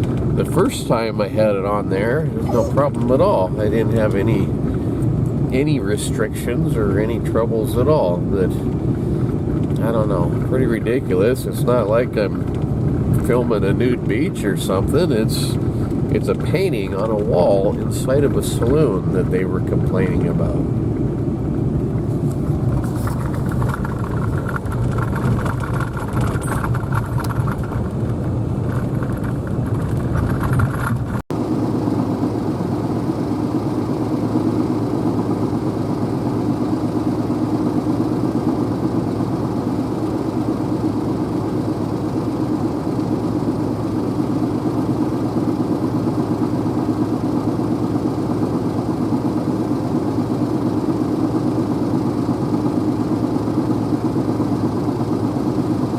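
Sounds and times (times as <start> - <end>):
vehicle engine and road noise: 0.0 - 55.9
smooth steady drone: 0.4 - 9.2.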